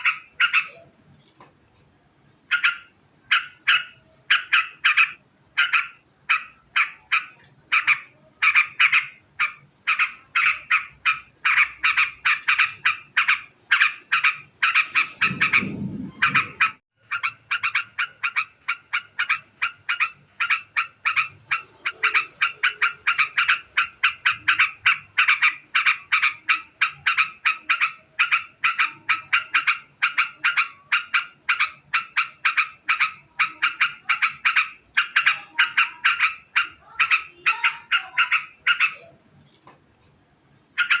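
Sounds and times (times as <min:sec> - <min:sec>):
bird fast chattering call: 0:02.5 - 0:39.0, 0:40.8 - 0:41.0
low rumble: 0:15.0 - 0:16.8.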